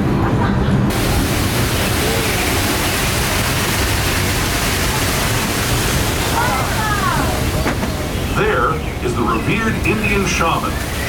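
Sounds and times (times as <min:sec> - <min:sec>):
train rushing noise: 0:00.0 - 0:11.0
faint voices: 0:04.4 - 0:11.0.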